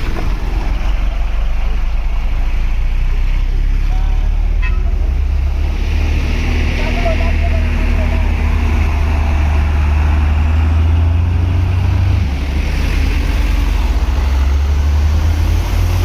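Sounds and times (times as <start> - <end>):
heavy truck engine running: 0.0 - 16.0.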